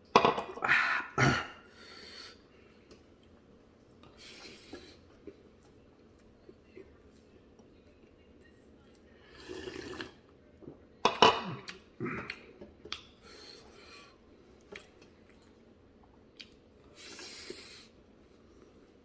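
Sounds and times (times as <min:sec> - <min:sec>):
slurping soup: 0:09.2 - 0:10.2.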